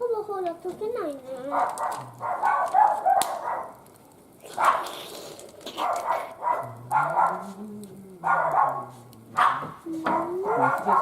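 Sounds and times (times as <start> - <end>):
dog barking: 1.5 - 3.8, 4.6 - 4.9, 5.8 - 7.5, 8.2 - 11.0.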